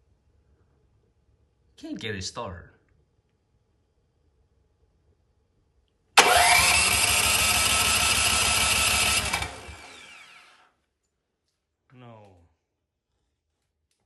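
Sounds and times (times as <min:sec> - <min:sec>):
electric starter cranking engine: 0:06.2 - 0:10.7.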